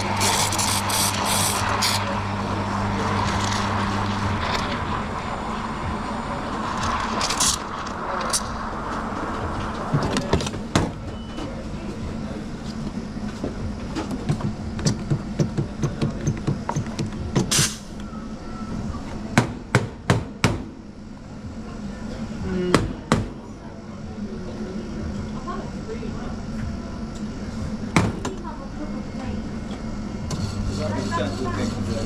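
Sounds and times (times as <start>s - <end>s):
espresso machine hiss: 0.0s - 2.2s, 30.3s - 32.0s
low machine hum: 0.0s - 19.8s, 20.7s - 32.0s.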